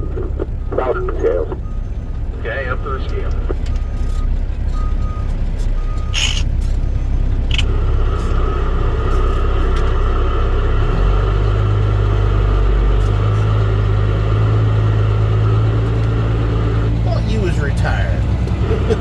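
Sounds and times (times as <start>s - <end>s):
truck diesel engine running: 0.0s - 19.0s
short hisses: 6.1s - 6.5s.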